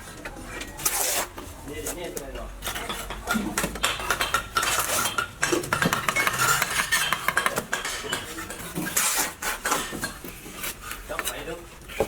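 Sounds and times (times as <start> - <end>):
metal clinking and scraping: 2.6 - 10.3.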